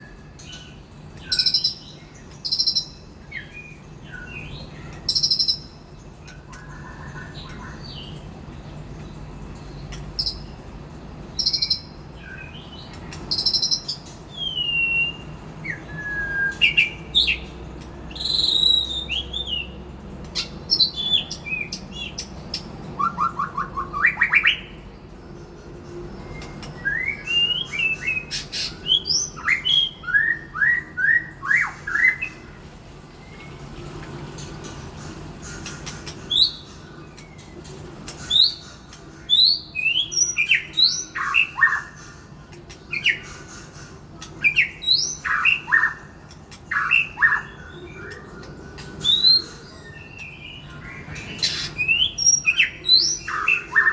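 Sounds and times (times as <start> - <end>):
bird singing whistled phrases: 13.3 - 17.4, 18.1 - 19.7, 26.4 - 32.4.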